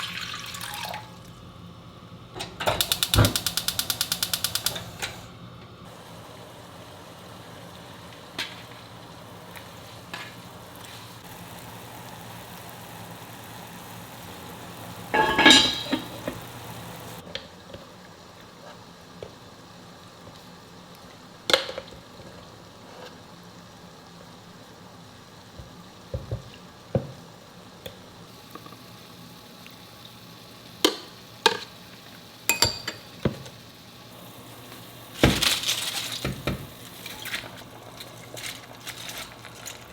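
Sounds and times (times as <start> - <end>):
food frying in a pot: 0.0 - 39.9
utensil clattering against pot: 15.1 - 16.5, 32.5 - 33.1.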